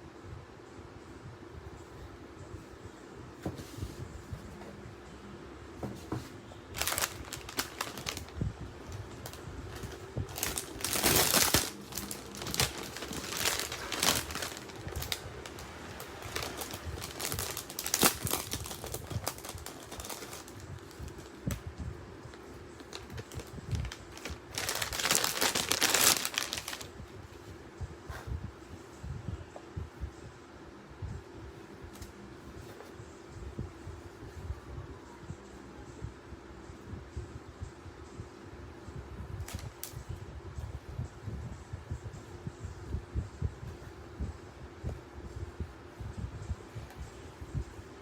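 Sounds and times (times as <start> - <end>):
packaging crinkling and rustling: 6.7 - 21.6, 22.8 - 26.9, 39.4 - 40.0.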